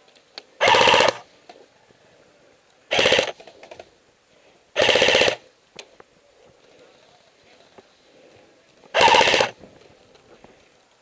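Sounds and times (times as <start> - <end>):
airsoft gun firing bursts: 0.6 - 1.2, 2.9 - 3.4, 4.8 - 5.4, 8.9 - 9.6.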